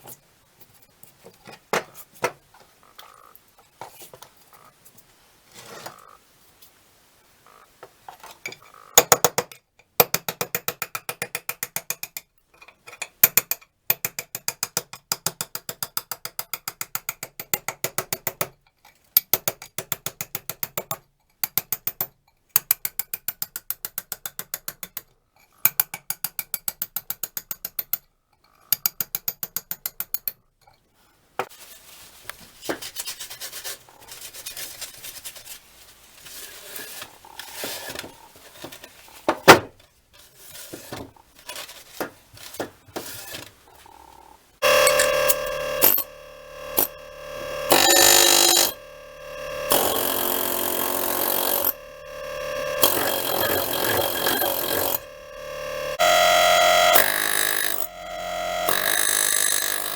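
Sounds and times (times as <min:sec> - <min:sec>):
soft rubbing scraping: 0:31.5 - 0:39.2
rapid mechanical ratchet clicking: 0:44.6 - 0:59.9.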